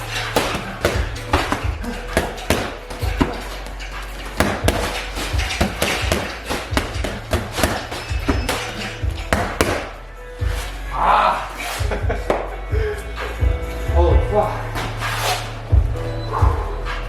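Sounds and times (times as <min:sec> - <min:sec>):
punches and kicks hitting pads: 0:00.1 - 0:03.6, 0:04.3 - 0:10.7.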